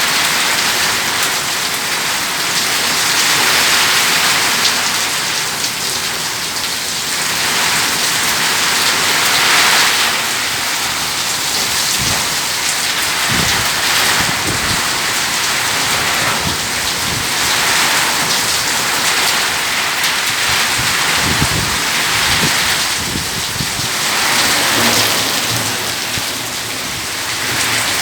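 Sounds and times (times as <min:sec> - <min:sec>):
heavy rain pouring: 0:00.0 - 0:28.0
thunder rumbling: 0:20.4 - 0:28.0.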